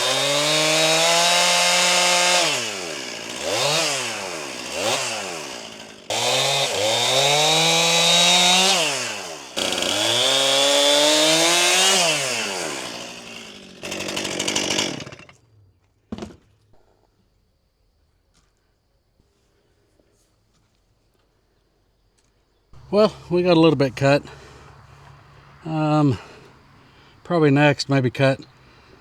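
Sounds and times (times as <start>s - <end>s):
chainsaw revving: 0.0s - 15.5s, 22.8s - 29.0s.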